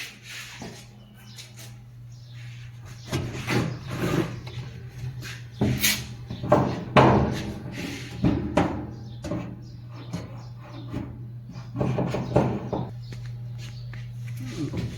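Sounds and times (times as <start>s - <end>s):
steady low hum: 0.0s - 14.9s
knocks and clatter on metal: 3.1s - 12.9s.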